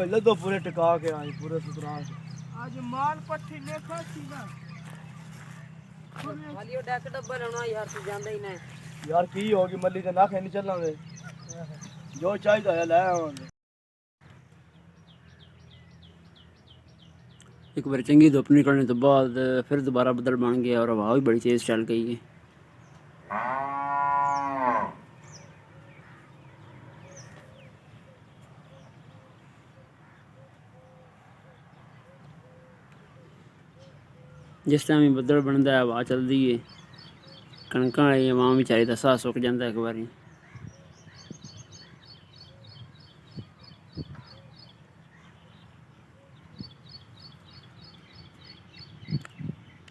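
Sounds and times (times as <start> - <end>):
low outdoor rumble: 0.0 - 12.2
cow mooing: 23.3 - 25.0.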